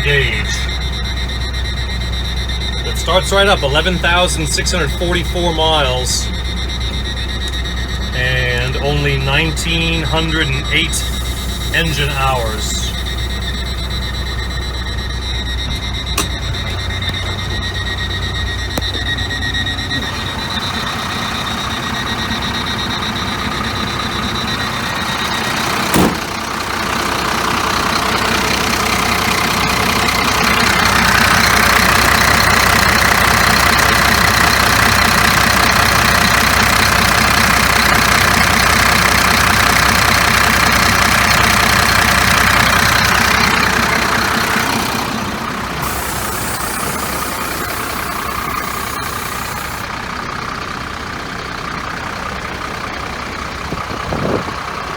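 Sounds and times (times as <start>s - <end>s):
diesel truck engine idling: 0.0s - 54.9s
loud hiss-like noise: 45.8s - 49.8s.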